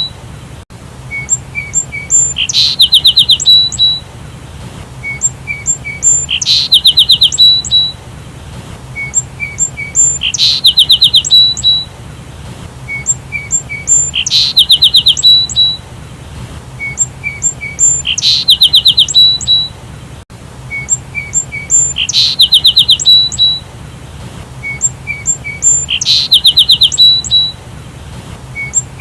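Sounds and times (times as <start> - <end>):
sparrow chirping: 1.1 - 4.0, 5.0 - 8.0, 9.0 - 11.9, 12.9 - 15.8, 16.8 - 19.8, 20.7 - 23.6, 24.6 - 27.6, 28.5 - 29.0.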